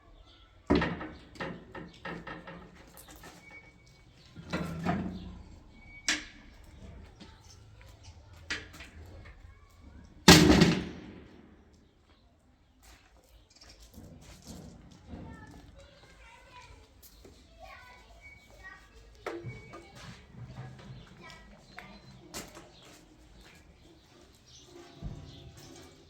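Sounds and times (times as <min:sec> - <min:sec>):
loud heavy ringing bang: 0:10.3 - 0:11.5.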